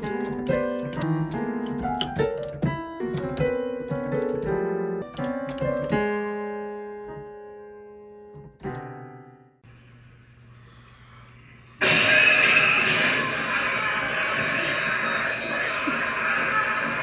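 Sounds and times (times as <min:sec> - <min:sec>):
piano music: 0:00.0 - 0:09.6
faint hum: 0:09.6 - 0:17.0
loud rush of noise: 0:11.8 - 0:17.0.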